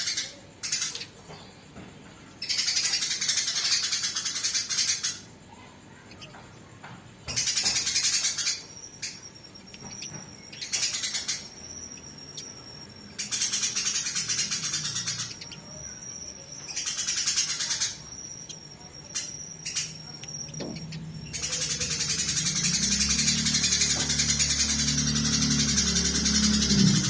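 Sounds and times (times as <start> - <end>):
sparrows chattering: 0.0 - 27.0
thin steady high tone: 2.5 - 27.0.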